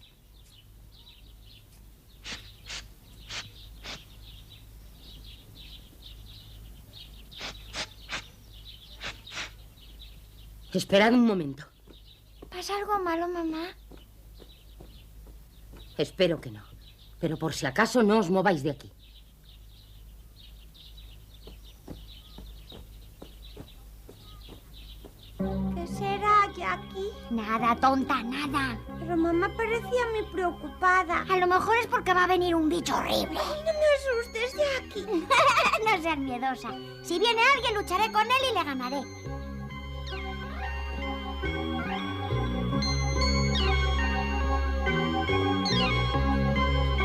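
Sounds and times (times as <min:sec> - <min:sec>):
birds chirping: 0:00.0 - 0:47.0
louder sharp bird calls: 0:02.1 - 0:04.6, 0:07.0 - 0:10.2, 0:20.4 - 0:25.4.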